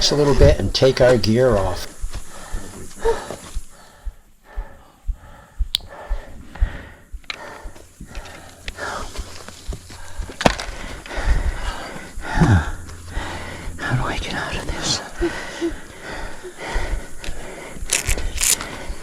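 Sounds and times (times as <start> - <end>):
sharp click: 5.7 - 5.9.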